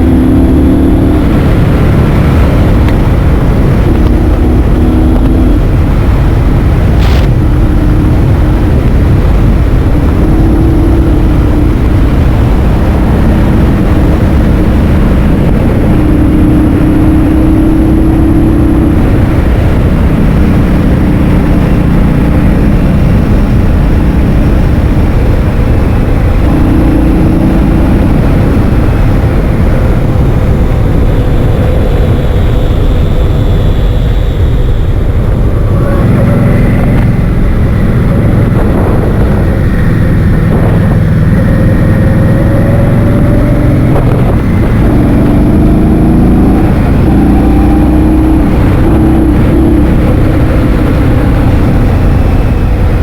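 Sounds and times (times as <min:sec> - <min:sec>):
scooter hum: 0:00.0 - 0:53.0
wind buffeting microphone: 0:00.0 - 0:53.0.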